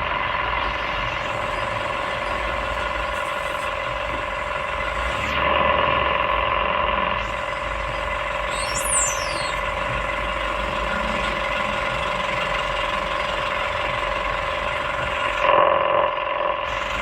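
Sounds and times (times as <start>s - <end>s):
excavator diesel engine droning: 0.0s - 17.0s
brief high squeal: 8.5s - 9.6s.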